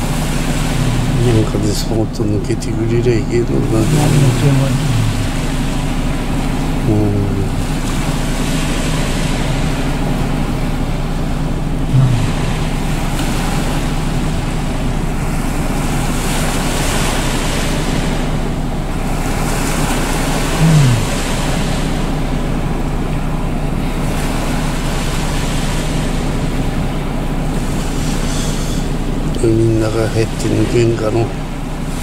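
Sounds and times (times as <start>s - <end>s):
low motor hum: 0.0s - 32.0s
waves washing against shore: 0.0s - 32.0s
brief low falling sounds: 11.9s - 12.9s.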